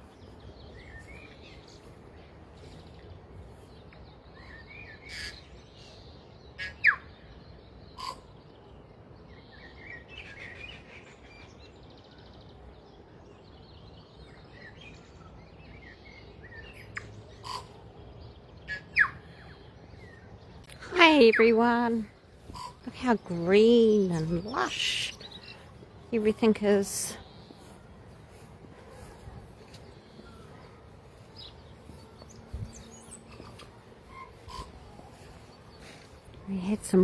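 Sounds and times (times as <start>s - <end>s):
birds chirping and chattering: 0.0s - 37.0s.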